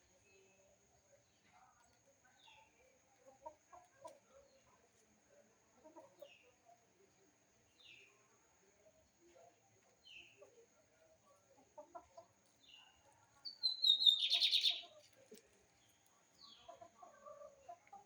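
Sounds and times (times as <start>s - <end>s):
chickens clucking: 5.6s - 6.6s, 9.8s - 18.0s
small bird descending chirps: 13.5s - 14.9s.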